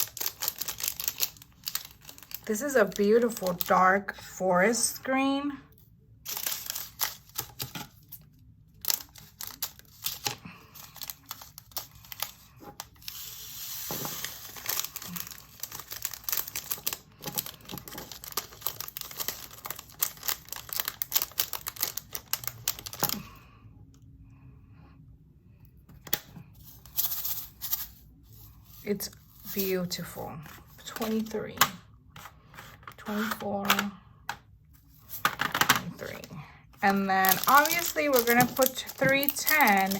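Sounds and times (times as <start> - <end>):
plastic bags crinkling: 0.0 - 4.0, 6.3 - 23.4, 35.0 - 39.9.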